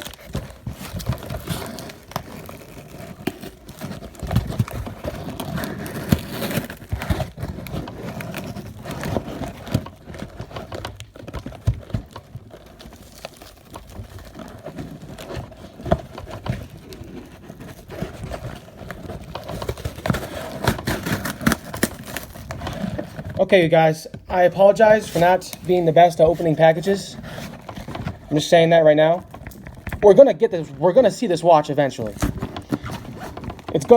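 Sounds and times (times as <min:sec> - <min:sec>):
package being forced open: 0:00.0 - 0:23.4, 0:32.0 - 0:33.9.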